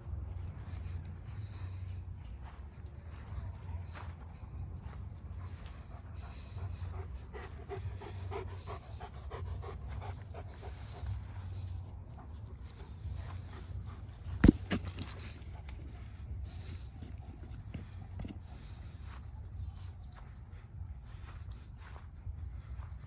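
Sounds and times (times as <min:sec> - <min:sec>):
dog panting: 0:03.2 - 0:14.4.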